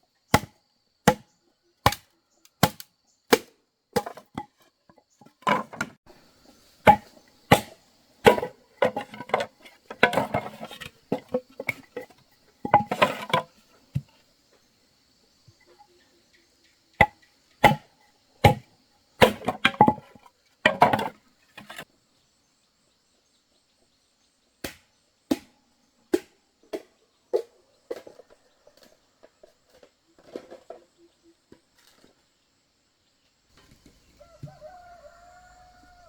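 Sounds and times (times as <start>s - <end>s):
tool striking wood: 1.1s - 2.0s, 6.9s - 11.8s.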